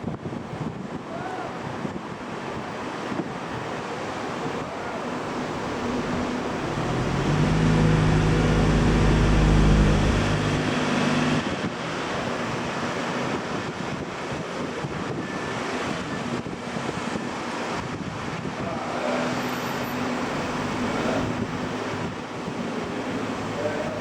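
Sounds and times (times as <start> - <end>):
aircraft engines passing: 5.0 - 11.8
wind buffeting microphone: 5.0 - 11.8.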